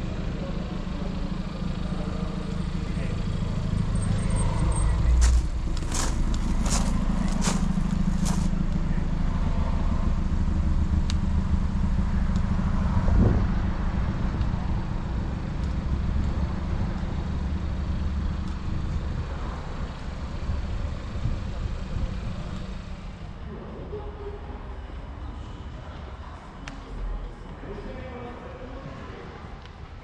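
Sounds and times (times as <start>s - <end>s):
car engine idling: 0.0s - 26.3s.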